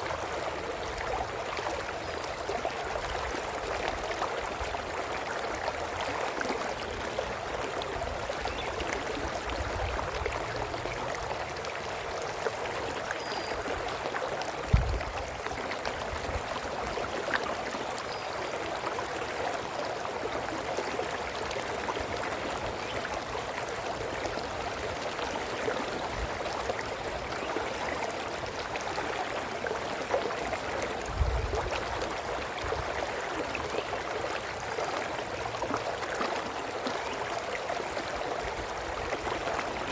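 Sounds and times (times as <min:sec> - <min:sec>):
brook babbling: 0:00.0 - 0:39.9
low thumps: 0:14.7 - 0:15.1.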